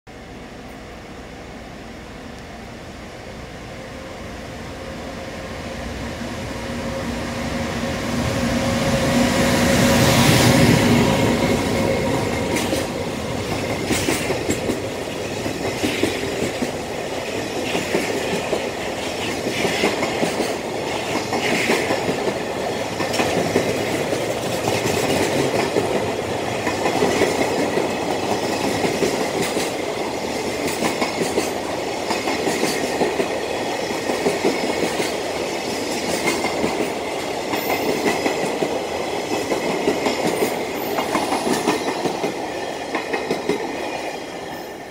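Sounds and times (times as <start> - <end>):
train wheels clattering over rail joints: 10.4 - 44.0.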